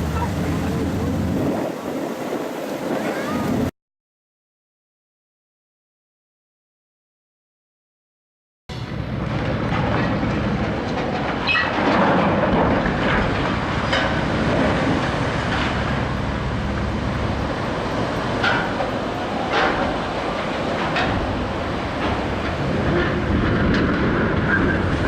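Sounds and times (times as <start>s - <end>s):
ship sliding down slipway rumble: 0.0s - 3.7s, 8.7s - 25.0s.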